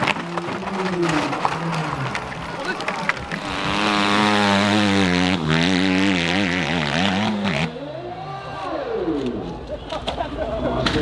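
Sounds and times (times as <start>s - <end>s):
dirt bike engine revving: 1.5s - 7.9s.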